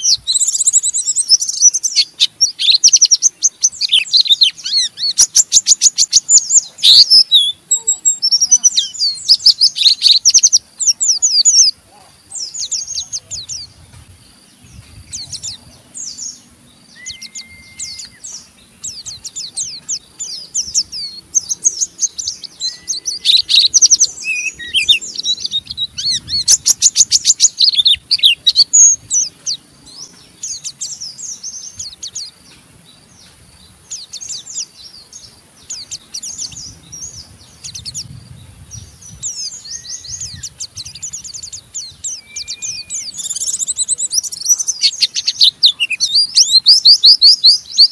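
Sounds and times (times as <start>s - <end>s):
birds twittering song: 0.0s - 47.9s
short whistled bird notes: 17.0s - 18.3s.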